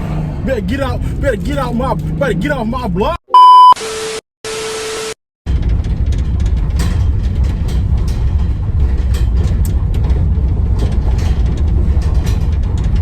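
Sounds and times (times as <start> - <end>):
van engine and road rumble: 0.0 - 3.2, 5.5 - 13.0
light rattles: 5.5 - 13.0.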